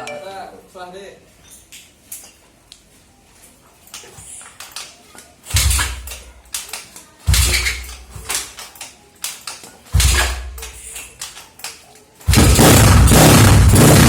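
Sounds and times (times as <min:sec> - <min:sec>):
exhaust crackles: 0:12.3 - 0:14.0
scooter engine revving: 0:12.3 - 0:14.0.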